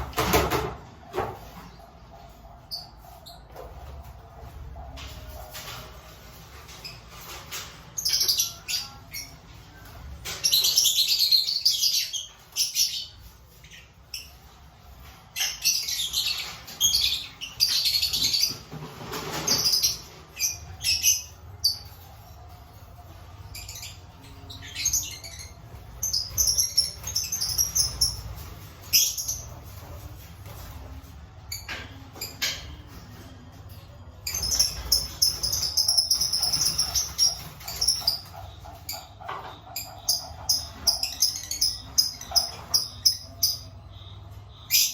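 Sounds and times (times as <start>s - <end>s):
lovebirds chattering: 23.1s - 44.9s.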